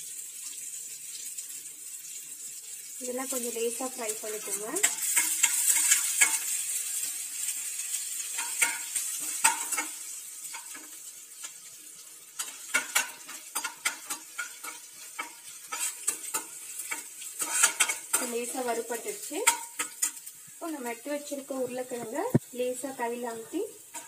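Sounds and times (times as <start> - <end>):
spices sizzling in hot oil: 0.0 - 24.0
metal spoon scraping a pan: 3.4 - 11.7, 12.3 - 20.8, 23.3 - 24.0.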